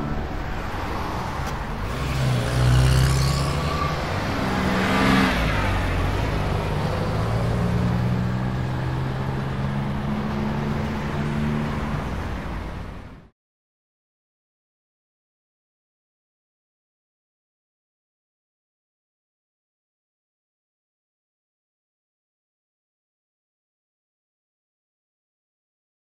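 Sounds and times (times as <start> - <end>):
car engine and road noise: 0.0 - 13.3.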